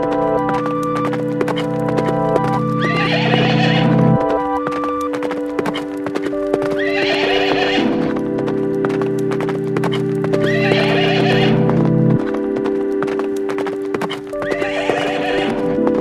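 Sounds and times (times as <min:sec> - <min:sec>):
background music with held notes: 0:00.0 - 0:16.0
hooves clip-clopping: 0:00.0 - 0:16.0
horse neighing: 0:02.8 - 0:04.0.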